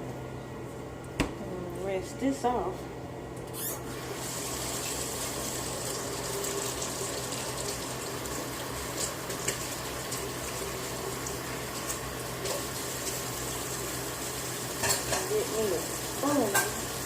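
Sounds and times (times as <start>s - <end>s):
tap water running: 3.8s - 17.0s.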